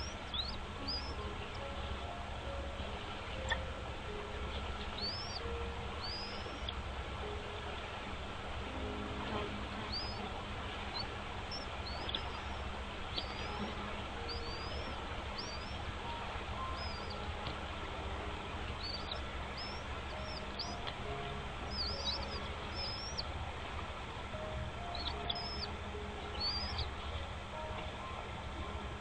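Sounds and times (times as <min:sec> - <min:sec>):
bird chirping: 0:00.0 - 0:28.9
steady background hiss: 0:00.0 - 0:29.0.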